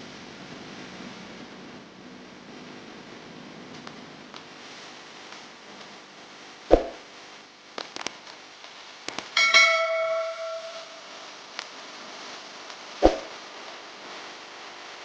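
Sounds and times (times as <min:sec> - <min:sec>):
struck metal clanging: 0:09.4 - 0:11.2.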